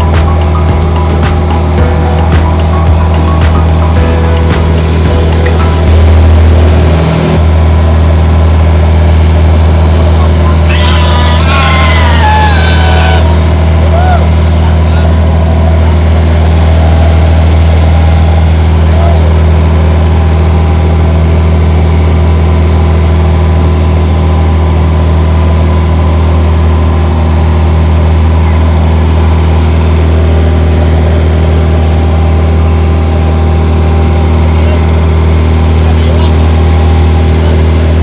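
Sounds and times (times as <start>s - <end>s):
large engine droning: 0.0s - 38.0s
faint voices: 10.2s - 17.3s.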